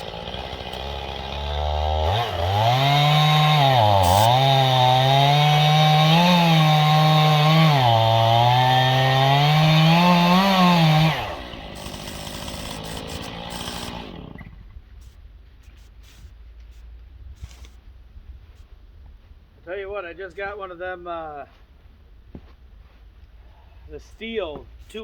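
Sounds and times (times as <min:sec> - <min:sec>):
chainsaw cutting wood: 0:00.0 - 0:14.7.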